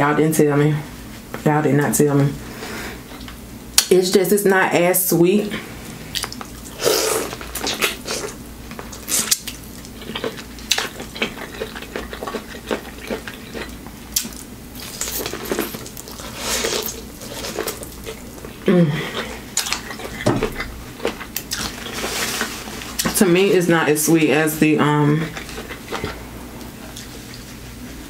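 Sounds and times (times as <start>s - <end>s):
chewing corn on the cob: 6.2s - 23.2s, 25.3s - 27.4s
person humming: 18.6s - 19.2s.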